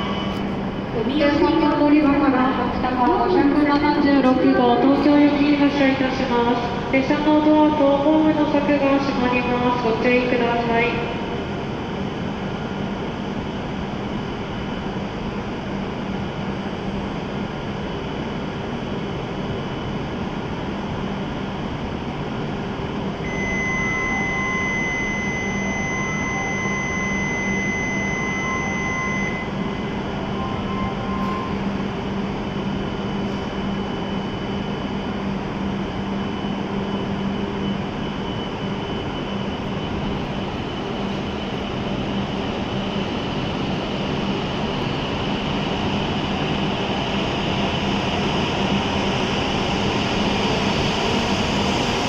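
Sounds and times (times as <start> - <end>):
short warning beeps: 23.3 - 31.9
high electronic tone: 23.3 - 32.0.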